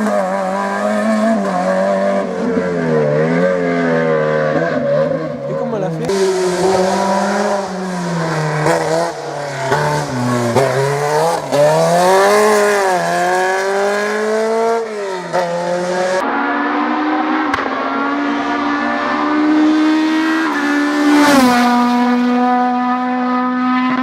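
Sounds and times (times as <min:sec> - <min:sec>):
rally car engine revving: 0:00.0 - 0:24.0
tyre and road noise: 0:00.0 - 0:24.0.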